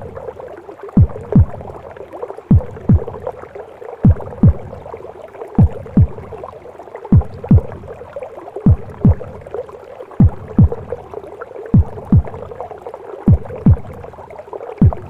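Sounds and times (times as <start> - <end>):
whooshing gurgling womb noise: 0.0 - 15.0
heartbeat thumps: 1.0 - 1.8, 2.5 - 3.3, 4.0 - 4.9, 5.6 - 6.4, 7.1 - 8.0, 8.6 - 9.5, 10.2 - 11.1, 11.7 - 12.6, 13.3 - 14.1, 14.8 - 15.0.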